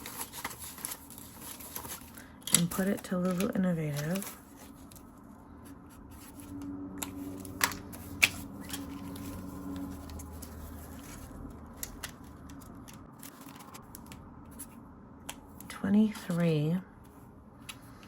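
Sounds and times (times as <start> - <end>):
paper money rustling: 0.0 - 5.2, 7.1 - 14.2.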